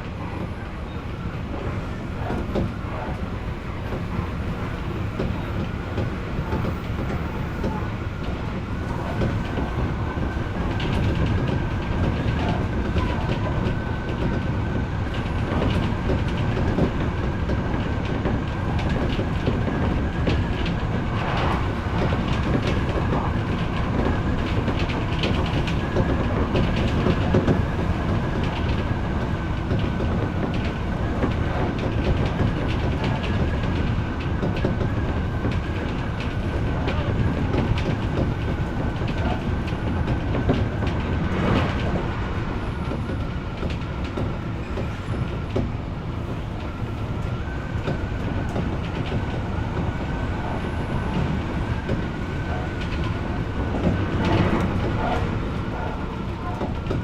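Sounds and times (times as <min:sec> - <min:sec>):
electric train rumble and whine: 0:00.0 - 0:57.0
rail-joint clicks: 0:46.5 - 0:57.0.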